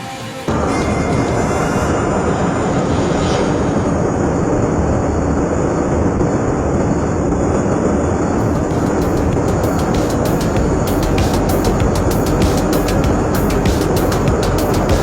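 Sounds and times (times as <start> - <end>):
jet engines roaring: 0.0 - 7.8.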